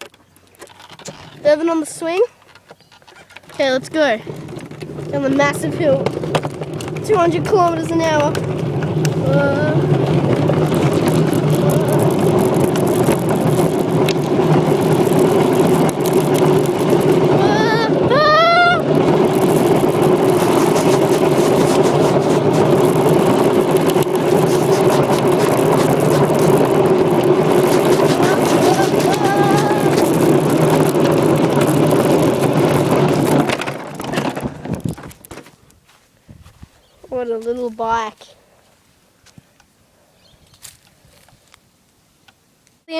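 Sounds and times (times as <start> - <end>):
steady rush of riding: 0.0 - 38.3
bike rattling clicks: 2.3 - 17.4, 18.8 - 35.8
wind buffeting microphone: 3.6 - 35.3, 36.2 - 37.4.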